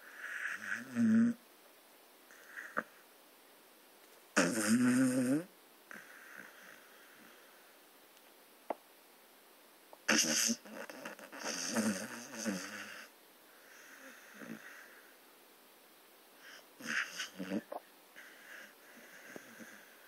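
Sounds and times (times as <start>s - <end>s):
dog snoring: 0.0s - 1.4s, 2.3s - 3.0s, 4.4s - 7.5s, 10.0s - 15.1s, 16.4s - 20.0s.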